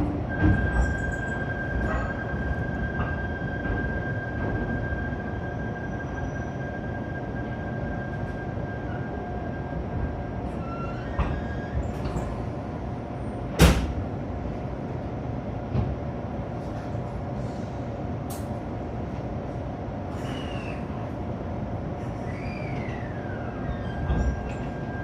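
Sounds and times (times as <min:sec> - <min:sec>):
train humming: 0:00.0 - 0:25.0
short falling squeals: 0:10.5 - 0:12.0, 0:20.1 - 0:21.0, 0:22.0 - 0:25.0.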